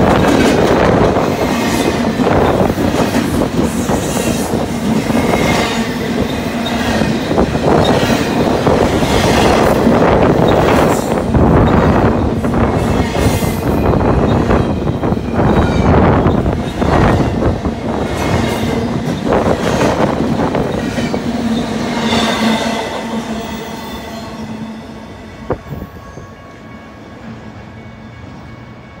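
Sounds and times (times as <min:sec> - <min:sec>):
freight train wheels on rail: 0:00.0 - 0:29.0.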